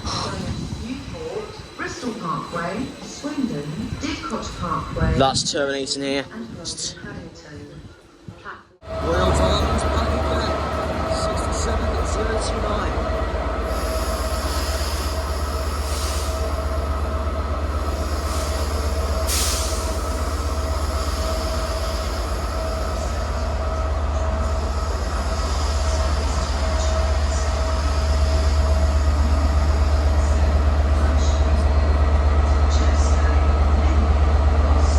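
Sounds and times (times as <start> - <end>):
diesel locomotive engine thrumming: 8.8 - 34.9.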